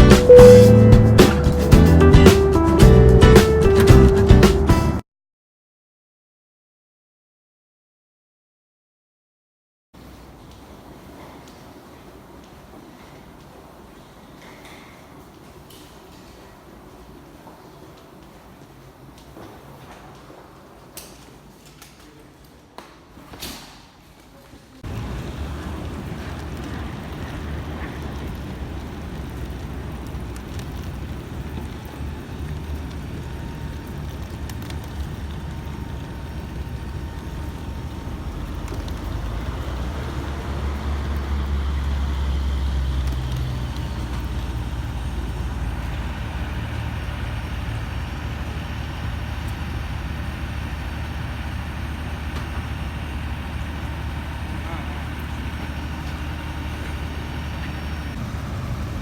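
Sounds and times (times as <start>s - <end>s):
vehicle engine rumble: 0.0s - 5.0s, 24.8s - 59.0s.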